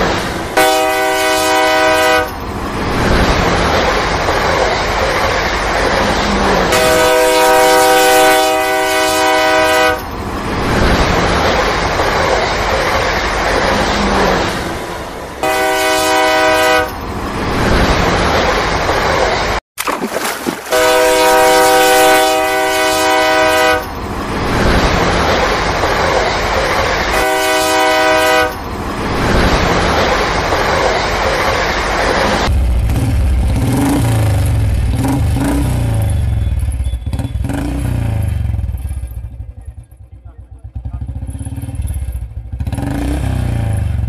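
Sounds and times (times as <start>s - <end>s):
train rumble: 0.0s - 19.6s, 20.7s - 44.0s
train horn blowing: 0.6s - 2.4s, 6.7s - 10.1s, 15.4s - 17.0s, 20.7s - 23.9s, 27.1s - 28.6s.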